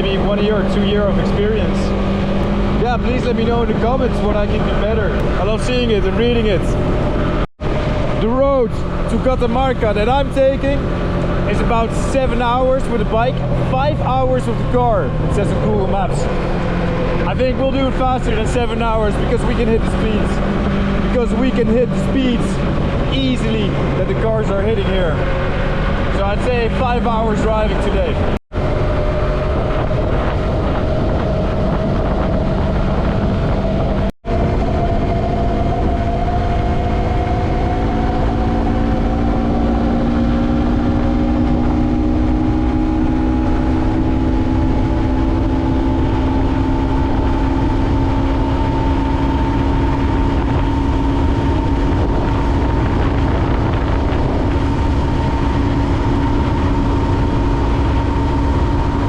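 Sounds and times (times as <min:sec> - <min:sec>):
motorcycle engine accelerating: 0:00.0 - 0:59.0
wind rush: 0:00.0 - 0:59.0.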